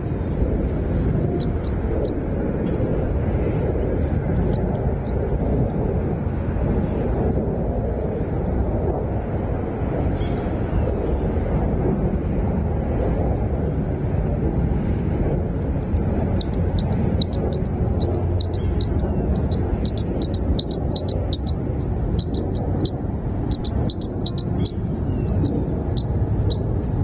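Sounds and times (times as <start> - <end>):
loud low rumble: 0.0 - 27.0
small birds chirping: 1.4 - 3.1, 15.6 - 26.7.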